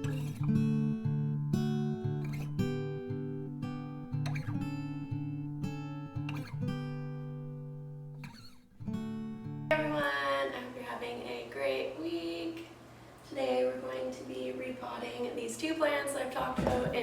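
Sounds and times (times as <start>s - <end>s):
acoustic guitar music: 0.0s - 10.6s
person speaking: 16.4s - 17.0s.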